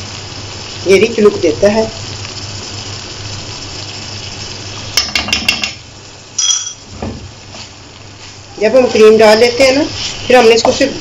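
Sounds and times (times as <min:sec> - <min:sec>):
meat sizzling in a pan: 0:00.0 - 0:11.0
utensil clinking on a dish: 0:06.4 - 0:06.8.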